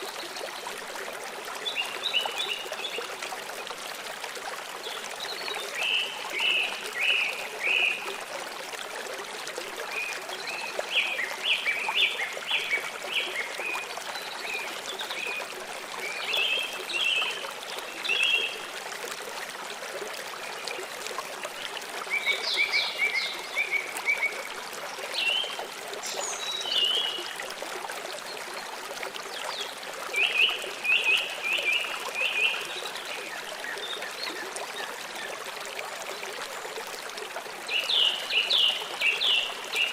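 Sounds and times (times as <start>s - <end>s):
water flowing: 0.0s - 39.9s.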